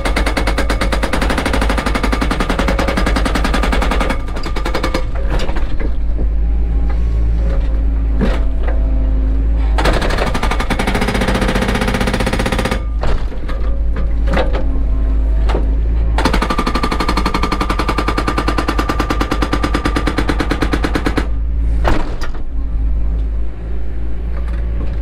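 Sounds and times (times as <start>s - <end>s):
excavator engine running: 0.0s - 25.0s.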